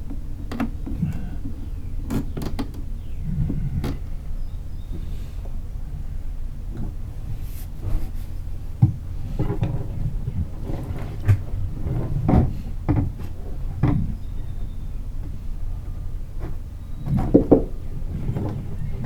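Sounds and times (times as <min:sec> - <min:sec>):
knocks and clunks of hand work: 0:00.0 - 0:04.1, 0:08.8 - 0:14.2, 0:16.4 - 0:19.0
steady low hum: 0:00.0 - 0:19.0.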